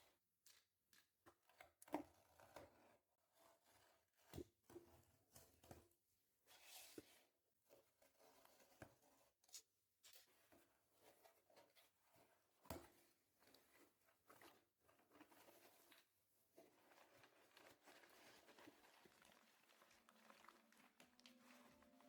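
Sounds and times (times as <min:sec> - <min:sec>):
cardboard or plastic rustling: 0:17.0 - 0:22.0.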